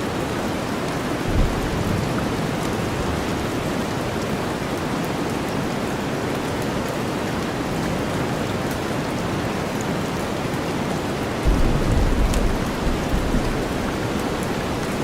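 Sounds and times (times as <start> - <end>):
steady rain: 0.0 - 15.0
thunder rumble: 11.4 - 15.0.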